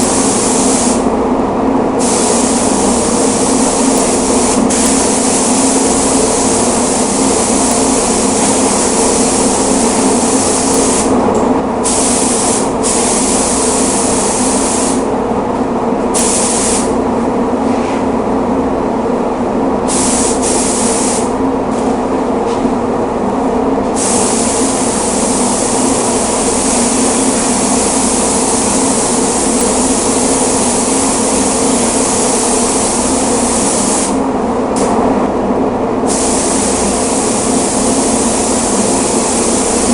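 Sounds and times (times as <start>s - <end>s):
paint spray gun hissing: 0.0s - 1.0s, 2.0s - 11.1s, 11.8s - 15.0s, 16.2s - 16.9s, 19.9s - 21.3s, 24.0s - 34.2s, 36.1s - 39.9s
steady mechanical drone: 0.0s - 16.2s.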